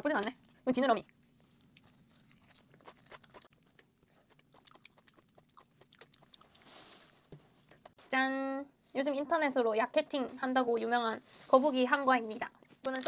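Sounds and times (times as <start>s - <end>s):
chewing mouth clicks: 1.5s - 6.6s.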